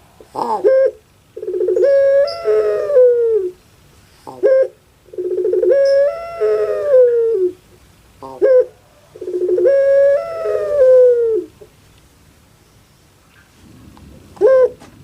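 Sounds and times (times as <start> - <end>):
dove cooing: 0.0 - 3.6, 4.2 - 7.6, 8.2 - 11.7, 14.2 - 15.0.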